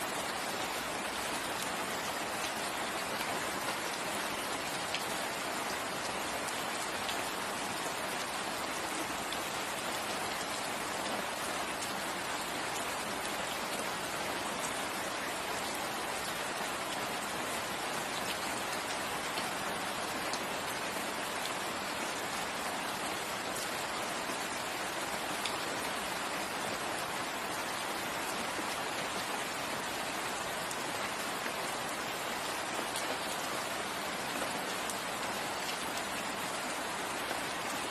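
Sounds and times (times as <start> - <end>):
patters of raindrops: 0.0 - 37.9
steady rain falling: 0.0 - 37.9.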